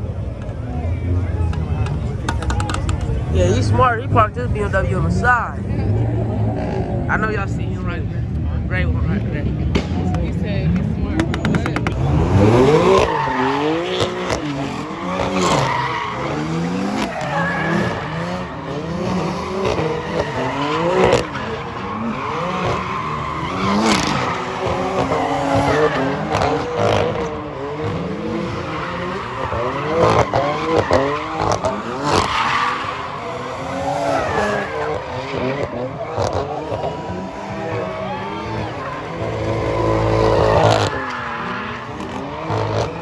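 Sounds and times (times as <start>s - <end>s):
car engine revving: 0.0s - 43.0s
tires squealing: 0.0s - 43.0s.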